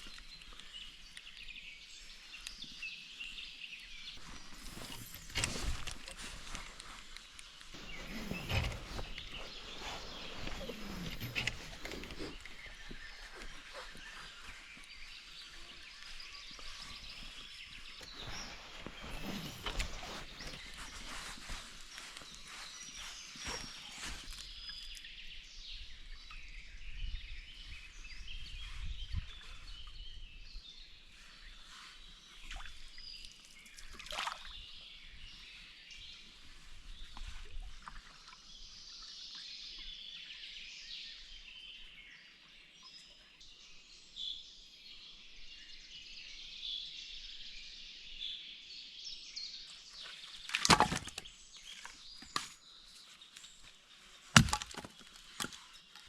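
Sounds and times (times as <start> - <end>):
birds chirping and singing: 7.7 - 32.4
faint water slosh: 31.8 - 34.8.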